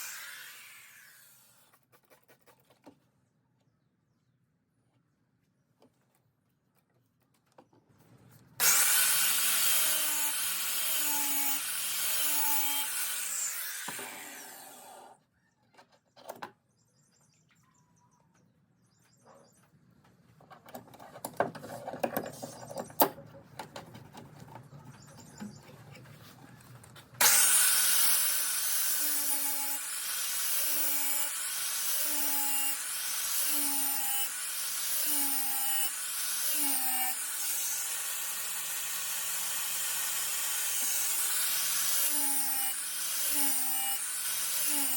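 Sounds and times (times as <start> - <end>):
angle grinder grinding metal: 0.0 - 1.6, 8.6 - 15.2, 27.2 - 44.9.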